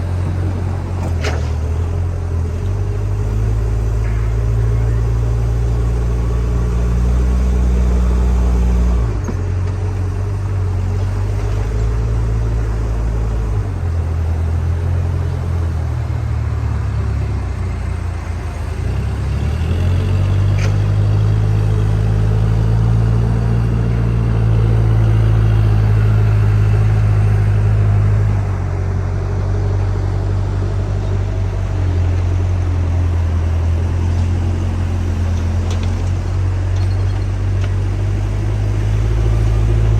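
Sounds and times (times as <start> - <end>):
heavy machine engine running: 0.0 - 39.9.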